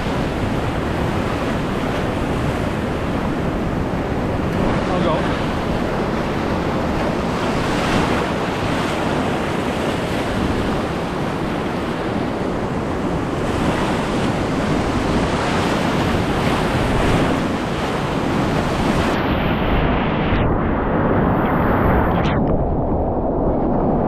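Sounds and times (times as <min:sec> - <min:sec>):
whitewater rushing in river rapid: 0:00.0 - 0:12.2
wind noise on microphone: 0:00.0 - 0:24.0.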